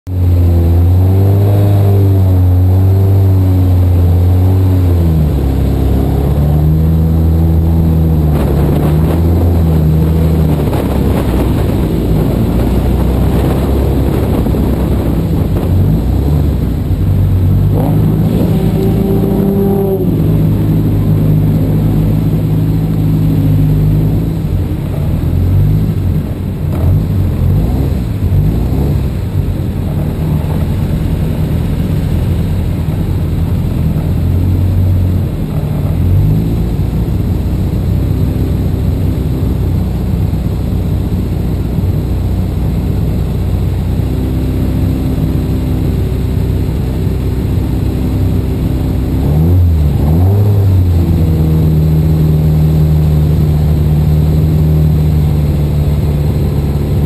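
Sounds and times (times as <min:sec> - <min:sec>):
car engine idling: 0:02.2 - 0:57.0.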